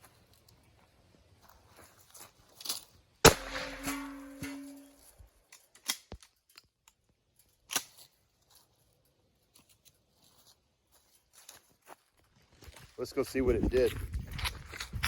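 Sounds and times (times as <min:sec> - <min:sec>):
shotgun shot ringing: 0:03.2 - 0:04.9.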